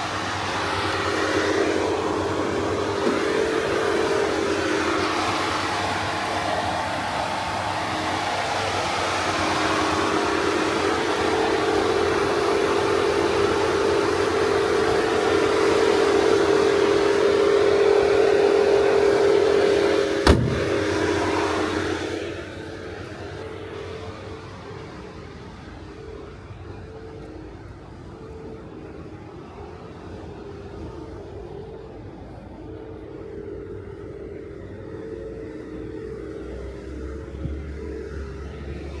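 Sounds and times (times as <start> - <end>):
car engine idling: 0.0 - 39.0
car bonnet shutting thump: 20.2 - 20.8.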